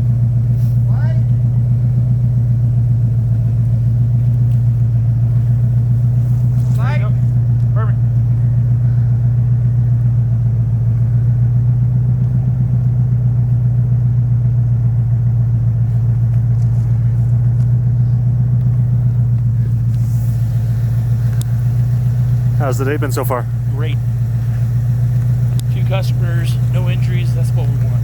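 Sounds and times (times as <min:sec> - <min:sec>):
vehicle engine idling: 0:00.0 - 0:28.0
faint clicks: 0:18.6 - 0:22.2, 0:24.1 - 0:25.8.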